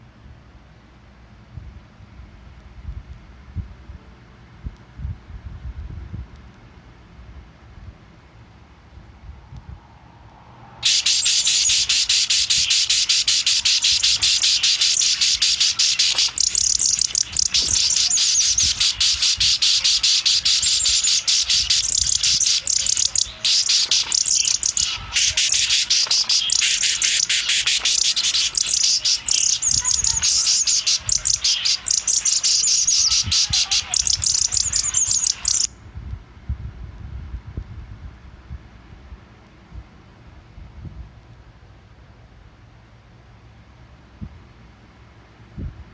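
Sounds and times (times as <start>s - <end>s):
baby bird chirping rapidly: 10.8s - 35.7s.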